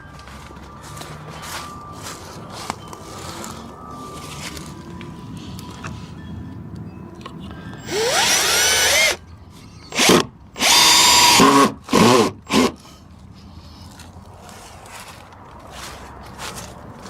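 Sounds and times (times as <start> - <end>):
power drill driving screws into wood: 7.8 - 9.2, 9.9 - 12.8.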